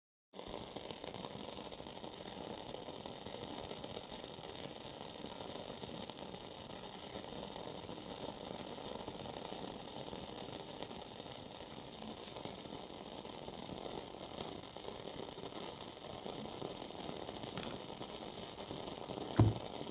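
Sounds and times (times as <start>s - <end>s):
candle wick crackling: 17.3s - 19.7s.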